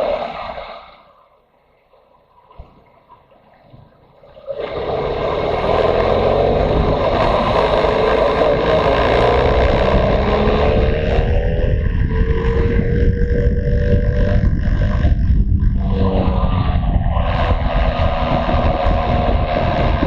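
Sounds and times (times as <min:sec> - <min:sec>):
wind noise: 0:04.5 - 0:20.0
motorcycle engine: 0:04.6 - 0:20.0.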